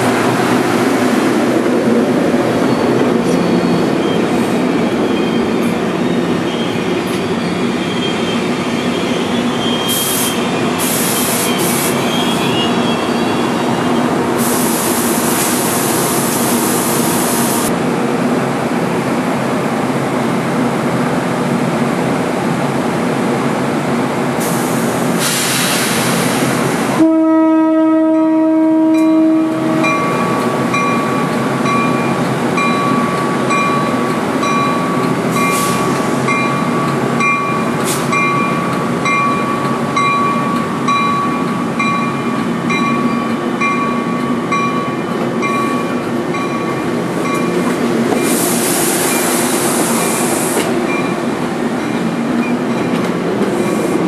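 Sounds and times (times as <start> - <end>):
train rumbling with wheel clatter: 0.0 - 54.0
train air horn: 27.0 - 29.9.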